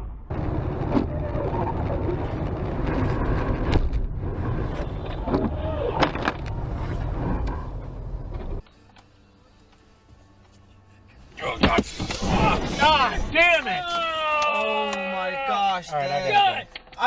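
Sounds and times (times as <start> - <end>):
car engine rumble: 0.0 - 8.7.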